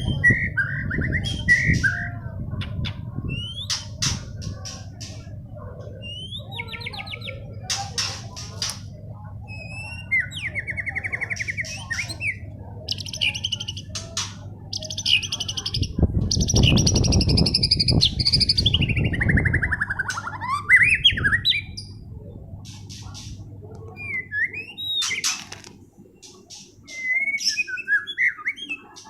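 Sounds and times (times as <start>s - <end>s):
bird singing trills and whistles: 0.0s - 5.1s, 6.0s - 8.8s, 9.4s - 22.0s, 23.9s - 25.5s, 26.2s - 29.0s
low rumbling noise: 20.6s - 24.3s.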